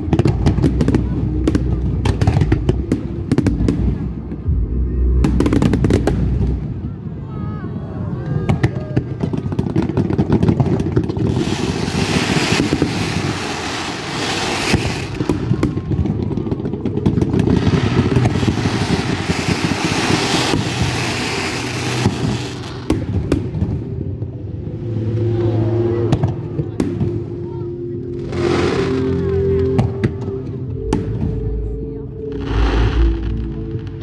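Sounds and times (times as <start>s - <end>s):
fireworks crackling and banging: 0.0s - 6.9s, 8.5s - 24.3s
low rumble: 0.0s - 9.2s, 11.4s - 34.0s.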